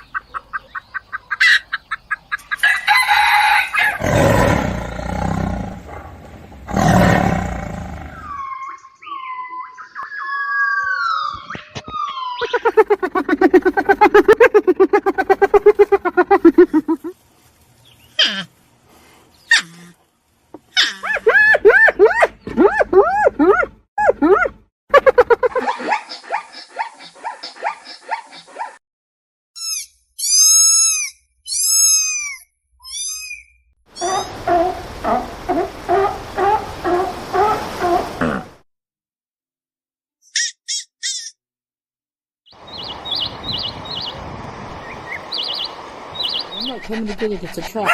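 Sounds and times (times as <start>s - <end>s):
animal whining call: 7.7s - 17.0s
animal yelps: 10.0s - 17.1s, 19.5s - 20.0s, 20.7s - 28.8s, 30.2s - 38.3s
animal call pitched pulses: 10.2s - 17.1s.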